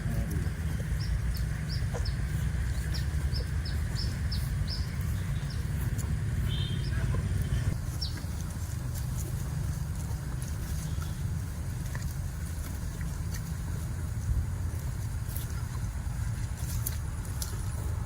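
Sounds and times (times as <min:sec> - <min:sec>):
steady low rumble: 0:00.0 - 0:18.0
bird chirping: 0:00.8 - 0:05.8, 0:06.4 - 0:08.2.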